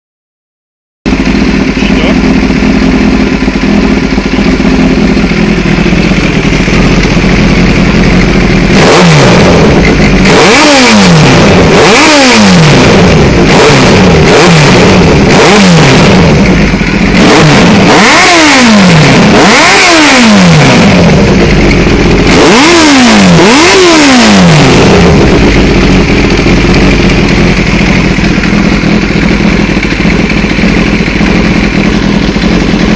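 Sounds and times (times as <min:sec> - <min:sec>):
motorcycle engine idling and revving: 0:01.1 - 0:32.9.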